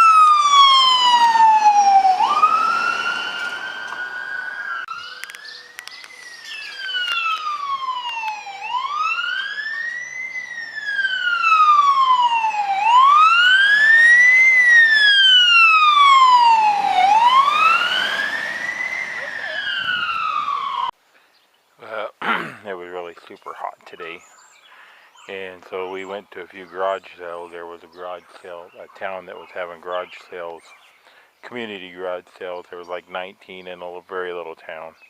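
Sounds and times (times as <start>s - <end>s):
fire siren wailing: 0.0s - 20.9s.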